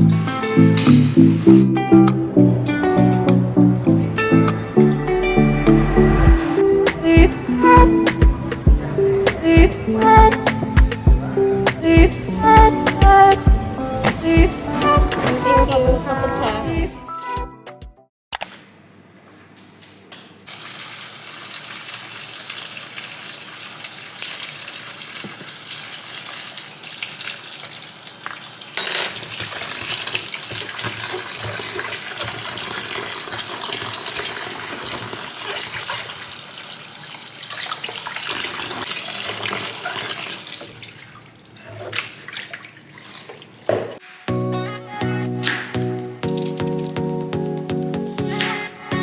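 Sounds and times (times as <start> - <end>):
water running steadily: 20.5 - 44.0.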